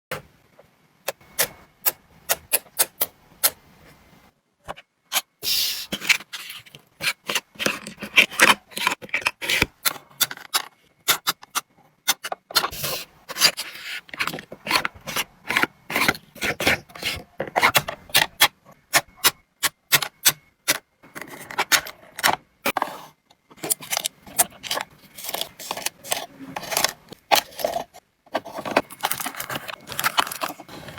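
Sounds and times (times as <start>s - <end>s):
rubbing and scraping: 22.7s - 30.9s.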